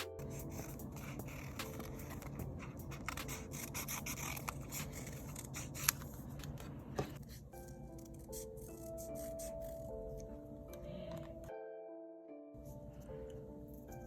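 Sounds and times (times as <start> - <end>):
paper scraping and rubbing: 0.2 - 6.6.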